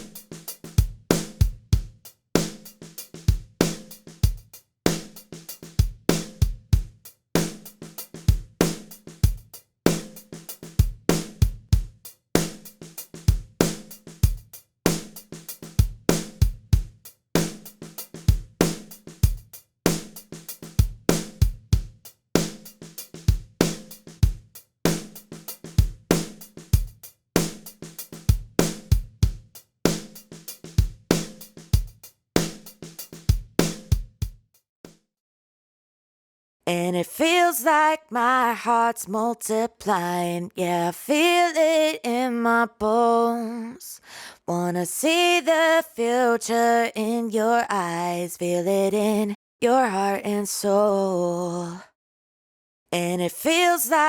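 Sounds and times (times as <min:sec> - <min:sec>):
looping drum beat: 0:00.0 - 0:34.4.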